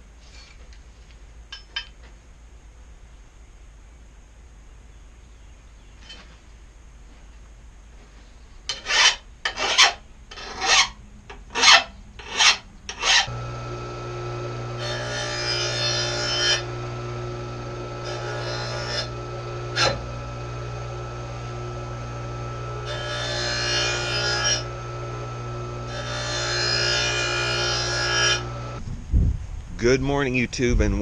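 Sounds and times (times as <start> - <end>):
file rasping on metal blade: 8.7 - 13.4, 14.8 - 16.8, 18.0 - 20.0, 22.8 - 24.8
harsh grinding noise: 8.7 - 28.8
electric motor hum: 13.1 - 28.8.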